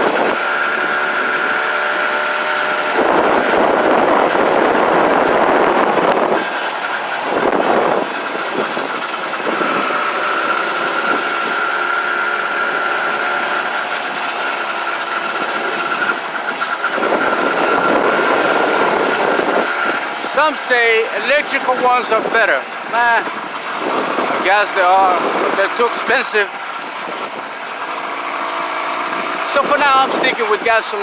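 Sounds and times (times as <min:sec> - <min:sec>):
loud rushing noise: 0:00.0 - 0:31.0
small gasoline engine whining: 0:00.0 - 0:31.0.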